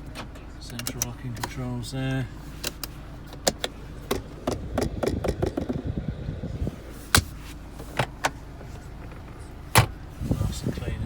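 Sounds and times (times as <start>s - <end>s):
central locking clicks and clunks: 0.0s - 1.6s, 7.9s - 10.0s.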